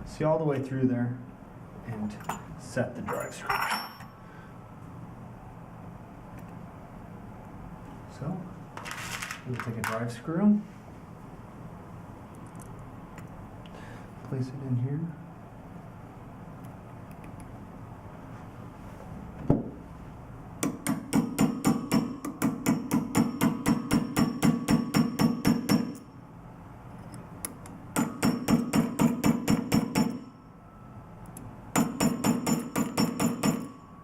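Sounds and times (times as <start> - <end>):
small hammer tapping a screw: 31.2 - 33.7.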